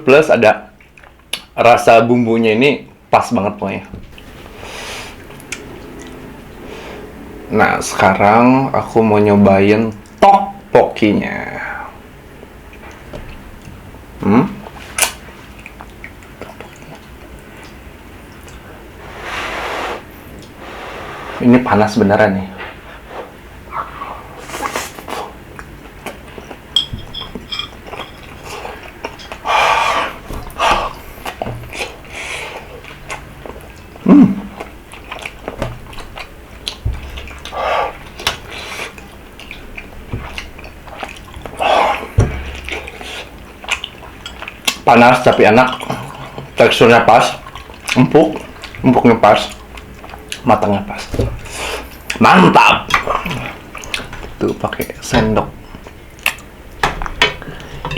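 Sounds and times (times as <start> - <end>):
person chewing: 4.1 - 7.2, 23.7 - 44.9, 47.4 - 52.2, 52.9 - 54.7, 55.6 - 57.9
wet mouth clicks: 5.2 - 6.2.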